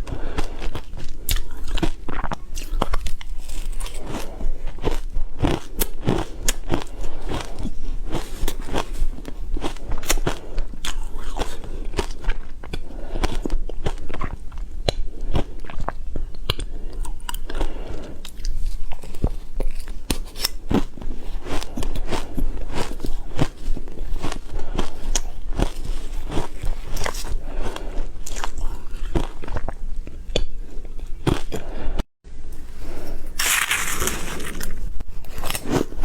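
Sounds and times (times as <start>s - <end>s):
ice crunching between teeth: 33.2s - 36.0s.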